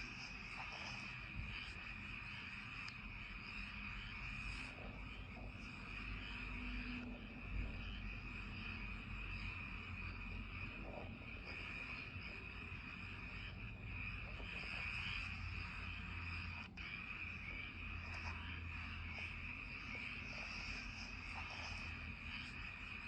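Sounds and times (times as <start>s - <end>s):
frogs and insects trilling: 0.0s - 23.0s.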